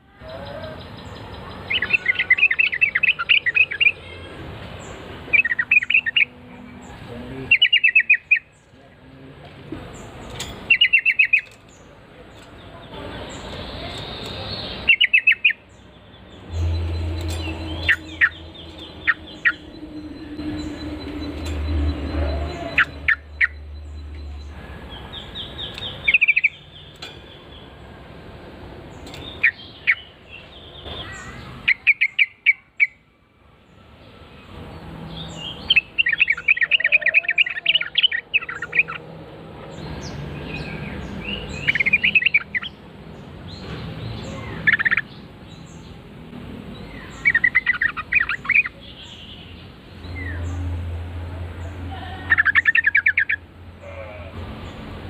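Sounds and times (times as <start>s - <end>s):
bird chattering calls: 7.5s - 8.5s, 16.4s - 24.6s, 44.3s - 45.1s, 46.9s - 49.4s.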